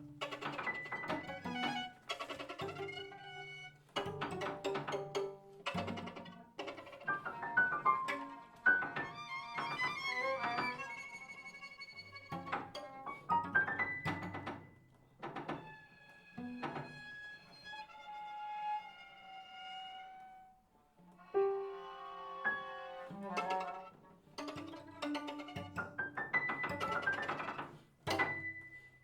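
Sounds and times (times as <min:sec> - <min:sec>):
piano trio chamber music: 0:00.0 - 0:17.4, 0:21.1 - 0:29.0.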